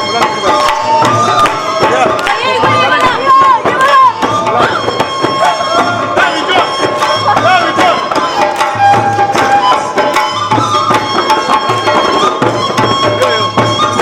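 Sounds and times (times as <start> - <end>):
devotional music: 0.0 - 14.0
hand drum beat: 0.0 - 14.0
sharp percussion strikes: 0.0 - 14.0.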